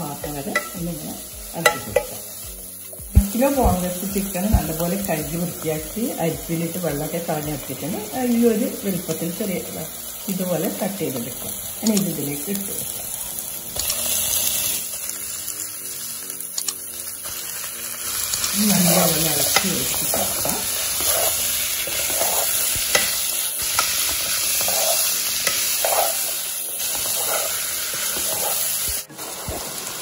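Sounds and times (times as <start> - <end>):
chicken sizzling in oil: 0.0 - 30.0
spoon scraping a pan: 18.7 - 29.6.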